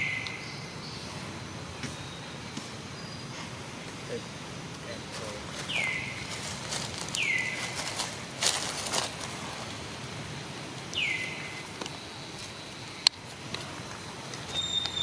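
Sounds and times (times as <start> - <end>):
bird whistled call: 14.5 - 15.0.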